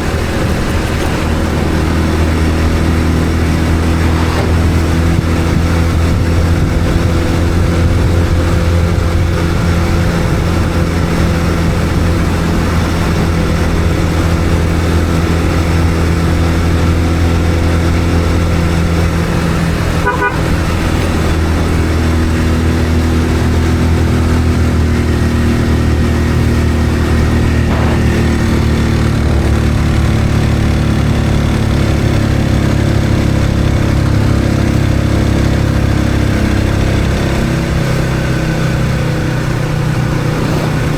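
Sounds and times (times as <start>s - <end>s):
vehicle engine running: 0.0s - 40.9s
horn toot: 19.9s - 20.8s.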